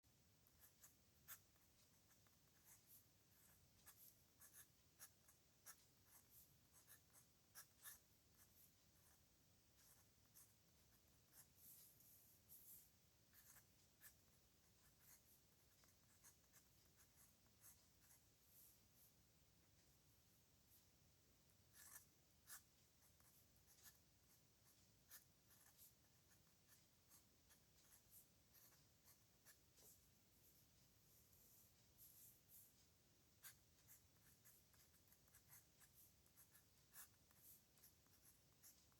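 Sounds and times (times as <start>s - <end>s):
pen writing on paper: 0.6s - 9.2s, 9.8s - 12.7s, 13.3s - 18.2s, 21.7s - 30.0s, 33.4s - 38.9s.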